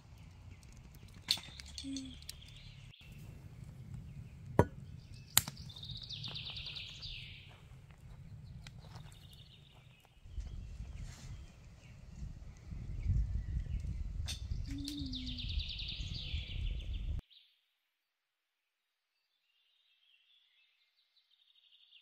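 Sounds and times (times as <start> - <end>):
sharp snaps: 5.3 - 5.8
songbird trilling: 14.5 - 16.6.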